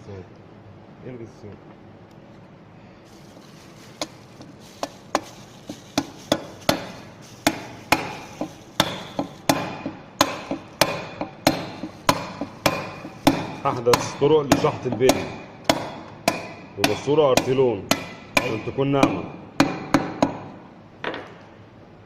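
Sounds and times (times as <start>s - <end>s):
hammer striking metal: 8.8s - 20.5s.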